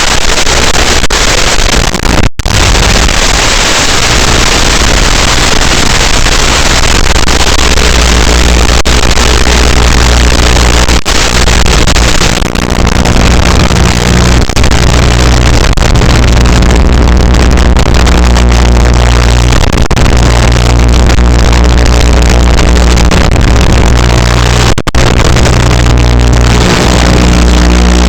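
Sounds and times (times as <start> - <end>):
drone motors buzzing: 22.7 - 28.0.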